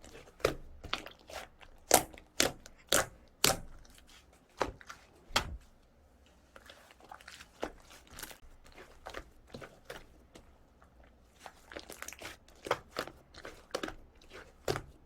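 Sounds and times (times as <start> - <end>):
slime squishing with wet pops: 0.0 - 5.6, 6.4 - 15.0.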